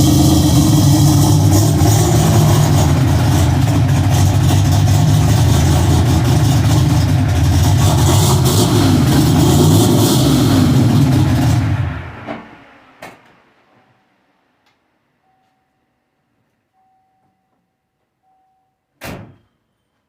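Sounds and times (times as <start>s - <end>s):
car engine idling: 0.0s - 13.8s.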